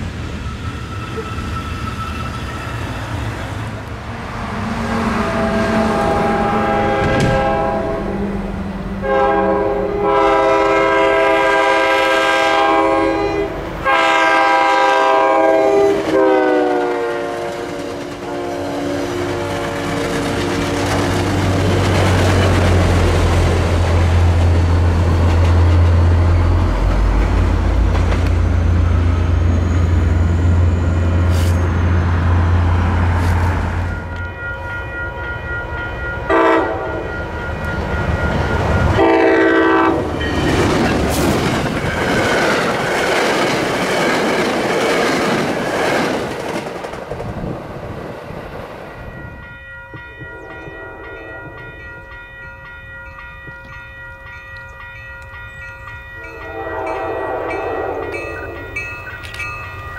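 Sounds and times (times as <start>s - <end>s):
freight train rumbling past: 0.0s - 59.9s
train horn blasts: 4.9s - 20.2s, 36.2s - 37.2s, 38.8s - 40.5s, 50.2s - 51.7s, 56.2s - 58.8s.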